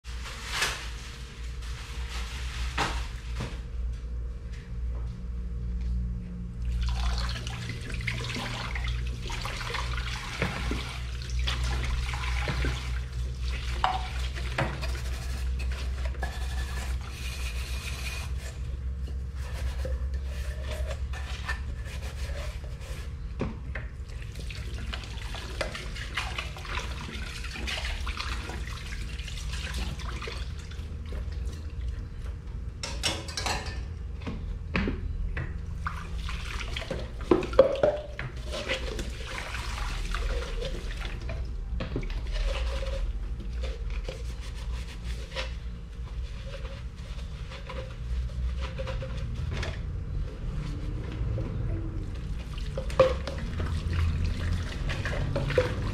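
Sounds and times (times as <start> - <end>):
steady low hum: 0.1 - 55.9
dishes clinking: 32.8 - 34.0.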